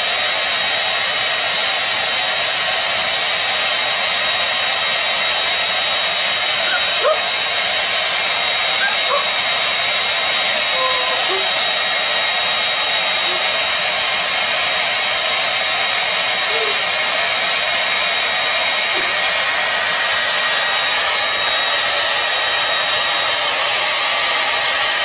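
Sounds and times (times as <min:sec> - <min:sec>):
hair dryer blowing: 0:00.0 - 0:25.0.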